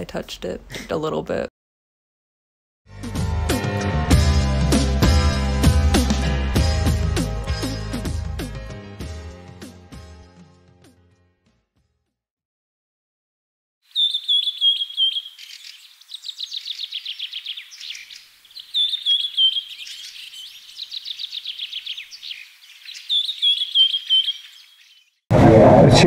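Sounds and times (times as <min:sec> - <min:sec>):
songbird chirping and trilling: 0:13.9 - 0:25.2.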